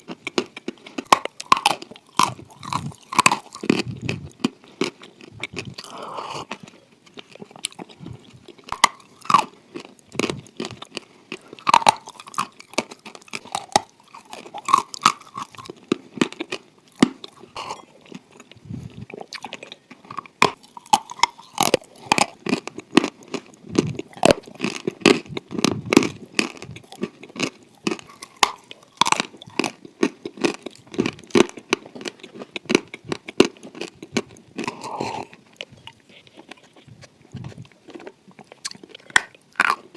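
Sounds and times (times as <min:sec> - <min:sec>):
wet chewing: 0:00.0 - 0:39.9.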